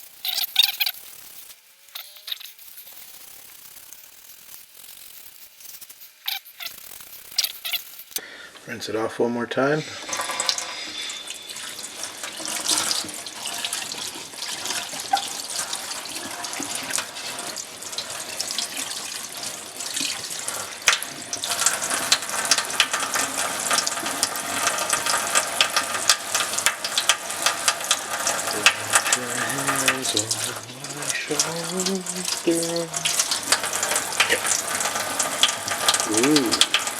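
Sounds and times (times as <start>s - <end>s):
tap water running into sink: 10.0s - 36.9s.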